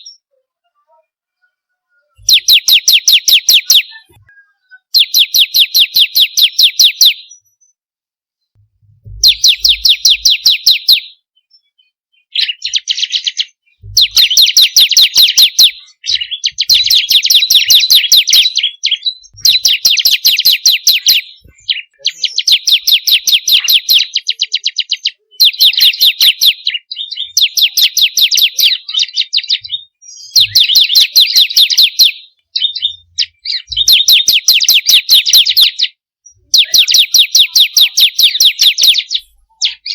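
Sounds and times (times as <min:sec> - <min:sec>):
bird calling in sharp high notes: 0:09.1 - 0:11.2.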